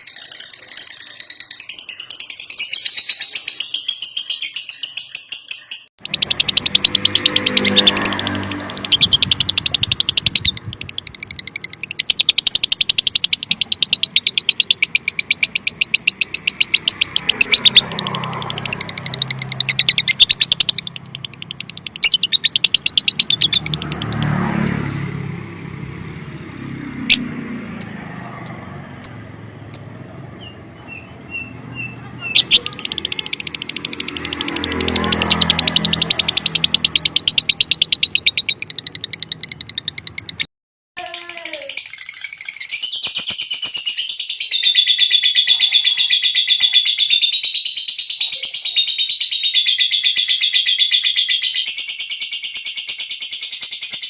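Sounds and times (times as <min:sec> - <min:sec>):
bird rapid chattering song: 0:00.0 - 0:54.0
sharp clicks: 0:16.0 - 0:24.3, 0:32.4 - 0:40.5.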